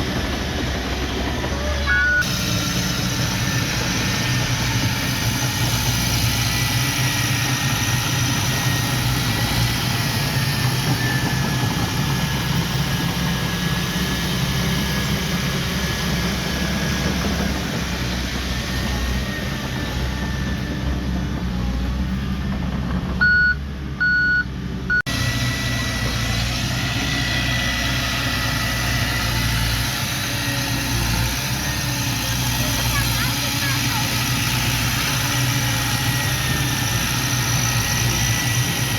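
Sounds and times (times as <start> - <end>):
diesel engine running: 0.0 - 38.9
reversing alarm beeping: 1.8 - 2.3, 23.2 - 25.1.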